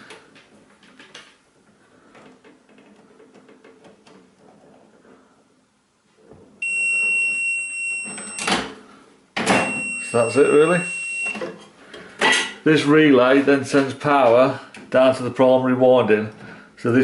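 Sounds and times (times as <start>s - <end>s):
multimeter continuity beep: 6.6s - 8.6s, 9.6s - 11.4s.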